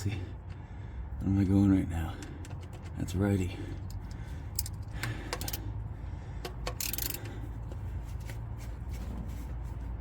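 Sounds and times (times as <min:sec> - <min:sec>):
socket wrench clicking: 0:03.9 - 0:05.6, 0:06.4 - 0:07.4.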